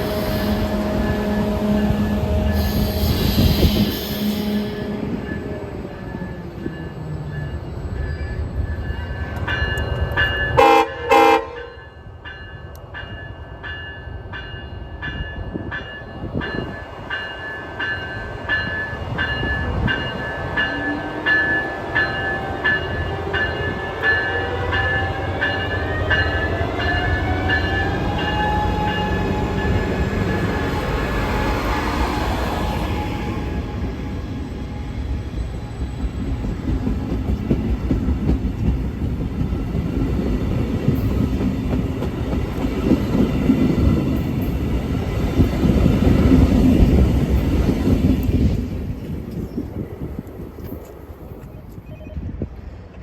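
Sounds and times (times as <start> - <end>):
train horn blasts: 0.0 - 5.7, 10.5 - 11.8
low rumble of train: 0.0 - 53.0
locomotive bell ringing: 4.4 - 31.7.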